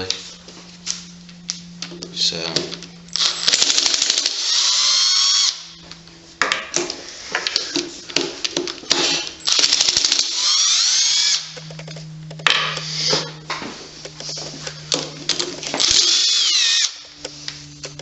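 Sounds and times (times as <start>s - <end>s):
drill rattling: 3.1s - 5.8s, 8.8s - 13.4s, 15.4s - 17.2s
power drill whining: 3.1s - 6.0s, 8.8s - 17.9s.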